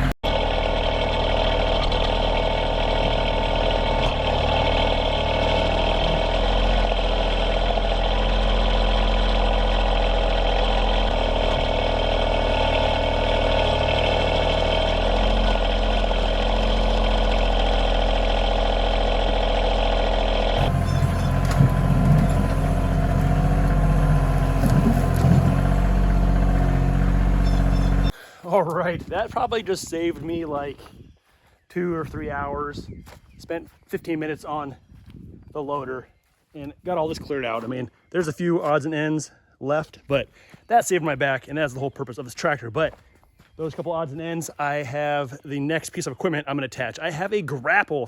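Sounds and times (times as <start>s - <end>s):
tractor diesel engine running: 0.0s - 28.2s.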